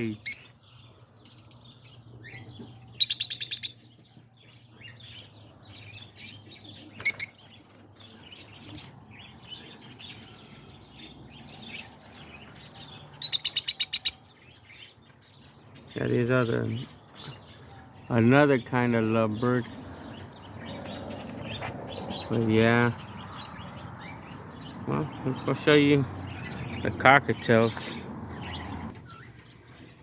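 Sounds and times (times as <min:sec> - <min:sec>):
parrots chattering: 0:02.9 - 0:03.8, 0:06.9 - 0:07.4, 0:13.1 - 0:14.3
sharp parrot call: 0:03.0 - 0:03.7, 0:13.2 - 0:14.2
soft parrot chirps: 0:03.0 - 0:03.8, 0:07.0 - 0:07.4, 0:13.2 - 0:14.2.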